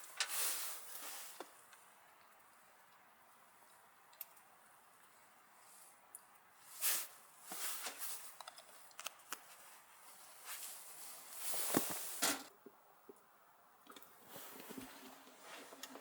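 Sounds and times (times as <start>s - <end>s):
rustling and handling noises: 0.0s - 4.4s, 5.0s - 12.5s.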